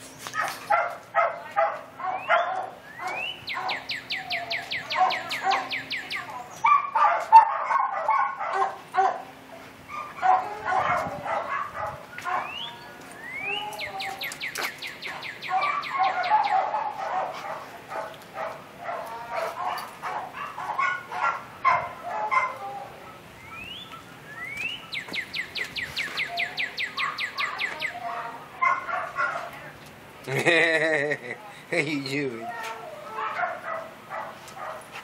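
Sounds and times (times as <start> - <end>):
songbird singing: 2.0 - 6.9, 12.0 - 17.0, 22.5 - 28.4
bird chirps and calls: 2.1 - 6.8, 12.1 - 16.7, 23.4 - 28.1.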